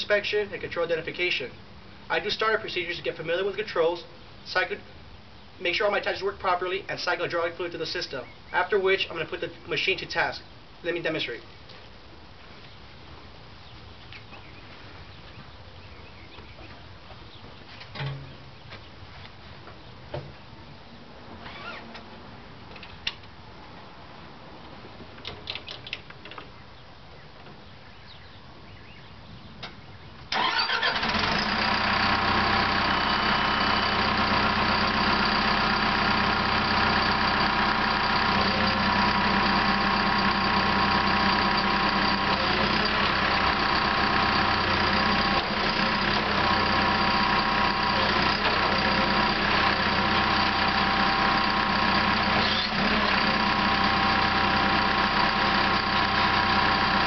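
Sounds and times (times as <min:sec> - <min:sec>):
diesel engine idling: 0:30.3 - 0:57.0.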